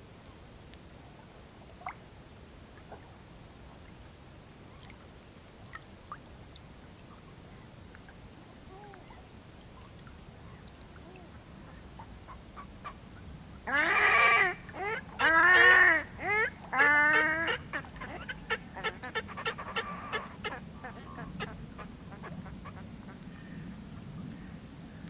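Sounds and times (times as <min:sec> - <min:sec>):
swans trumpeting honks: 0:13.7 - 0:21.6.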